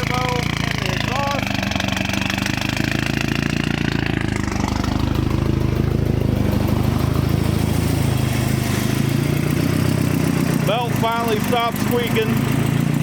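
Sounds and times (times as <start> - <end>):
turbocharged car engine idling: 0.0 - 13.0.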